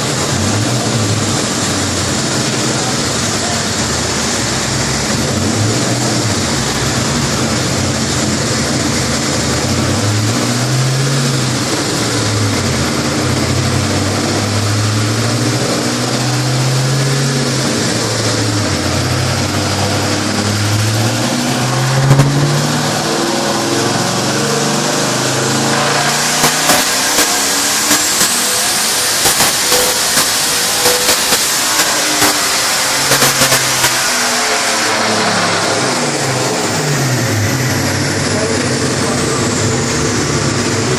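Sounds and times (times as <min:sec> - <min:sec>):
car engine at low revs: 0:00.0 - 0:40.9
sharp pop: 0:26.4 - 0:28.5, 0:29.2 - 0:34.1.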